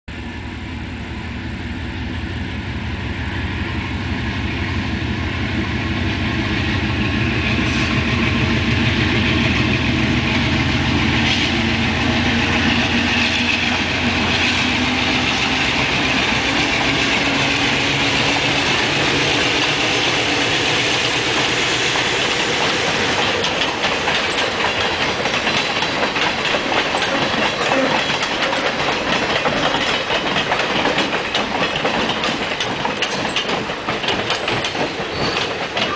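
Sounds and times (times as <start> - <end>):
diesel locomotive engine drone: 0.1 - 35.9
wheels clicking over rail joints: 11.3 - 35.9.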